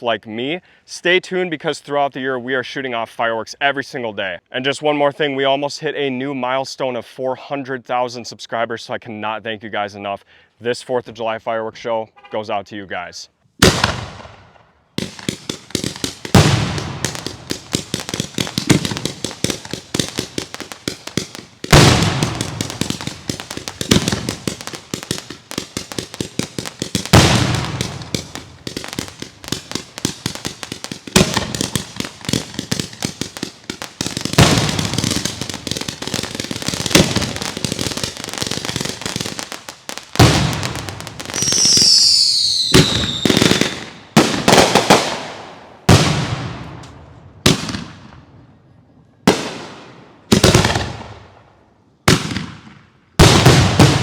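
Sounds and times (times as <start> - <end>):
loud firework bursts: 13.6 - 46.8, 49.3 - 51.2, 52.1 - 54.0
fireworks crackling: 15.0 - 48.0, 53.2 - 54.0
falling firework whistles: 40.7 - 43.9.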